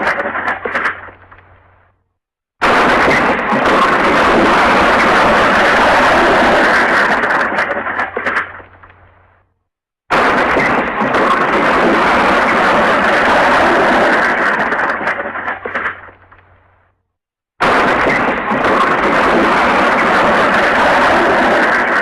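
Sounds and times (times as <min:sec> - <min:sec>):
loud crashing smash: 0:02.6 - 0:08.6, 0:10.1 - 0:16.2, 0:17.6 - 0:22.0.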